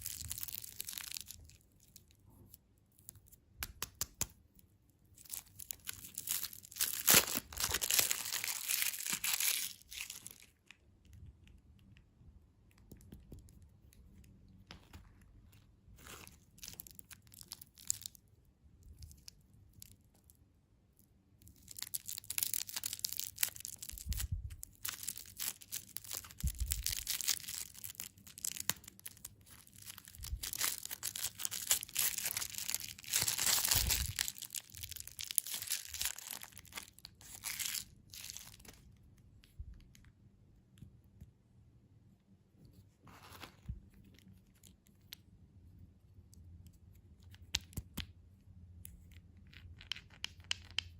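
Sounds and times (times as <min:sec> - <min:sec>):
wrappers being torn open: 0:00.0 - 0:02.1, 0:05.2 - 0:10.7, 0:16.0 - 0:18.2, 0:21.6 - 0:38.8
candy wrappers crinkling: 0:00.0 - 0:02.2, 0:05.1 - 0:11.5, 0:13.2 - 0:20.1, 0:21.4 - 0:40.1.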